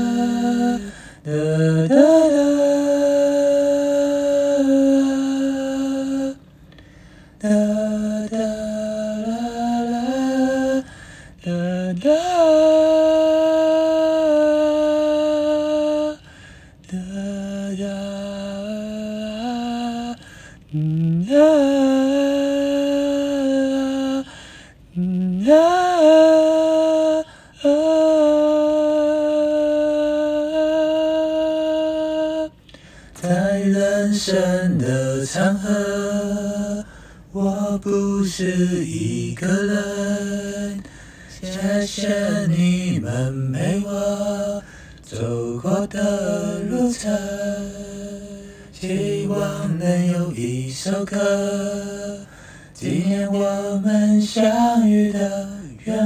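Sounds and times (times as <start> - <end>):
person humming a slow melody: 0.0 - 56.0.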